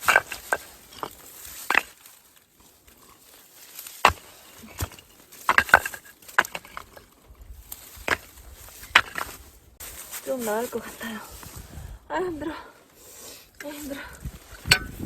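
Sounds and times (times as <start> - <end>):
dry leaves rustling and crackling: 0.0 - 4.6, 7.6 - 11.6.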